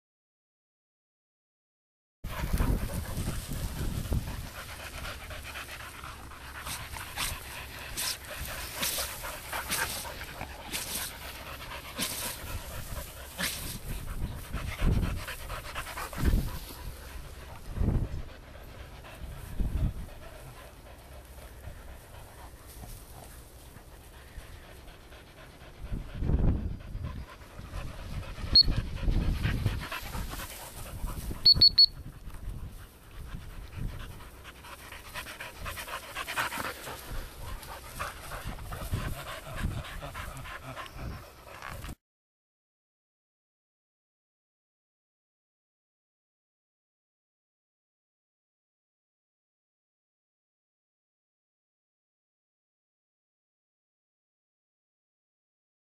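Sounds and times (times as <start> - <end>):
dogs panting: 2.3 - 42.0
recall whistle pips: 31.5 - 31.9.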